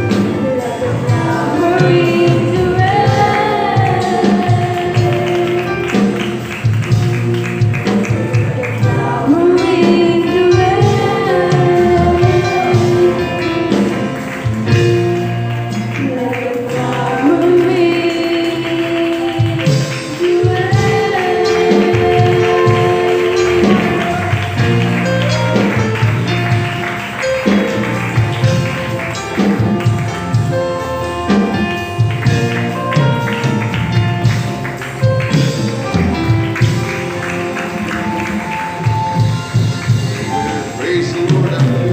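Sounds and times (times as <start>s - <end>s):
instrumental accompaniment: 0.0s - 41.9s
percussion steady beat: 0.0s - 41.9s
youth choir singing: 0.1s - 6.4s, 8.7s - 14.0s, 16.0s - 25.8s.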